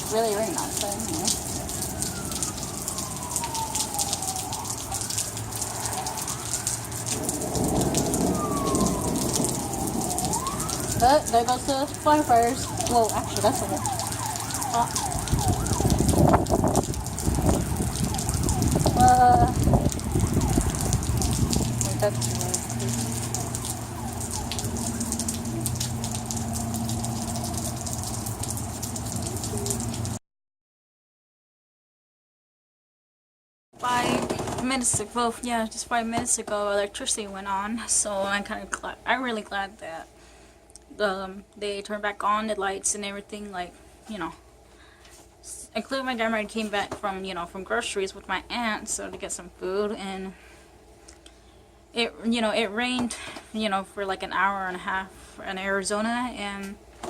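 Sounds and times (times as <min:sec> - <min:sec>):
fire engine siren wailing: 0:00.0 - 0:30.2
heavy rain pattering: 0:00.0 - 0:30.2.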